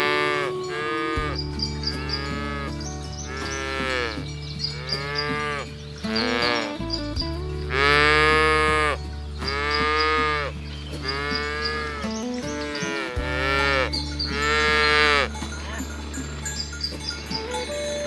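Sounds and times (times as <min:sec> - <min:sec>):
cattle mooing: 0:12.7 - 0:15.3.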